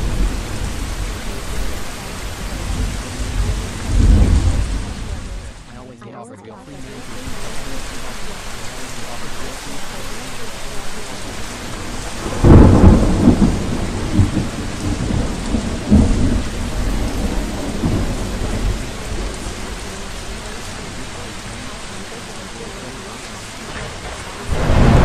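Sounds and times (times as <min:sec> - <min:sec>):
thunder clap and rumbling: 0:00.0 - 0:05.7, 0:11.0 - 0:21.5, 0:23.4 - 0:25.0
steady rain: 0:00.0 - 0:25.0.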